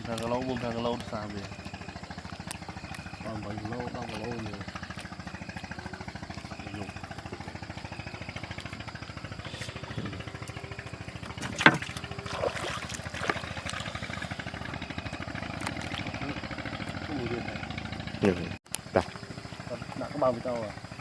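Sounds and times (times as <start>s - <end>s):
boat engine running: 0.0s - 21.0s
sharp knocks or splashes: 11.4s - 14.3s.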